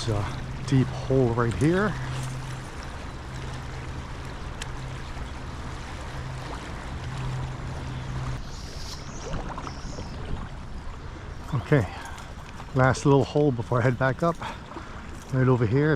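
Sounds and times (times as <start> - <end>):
creek water rushing: 0.0 - 15.9.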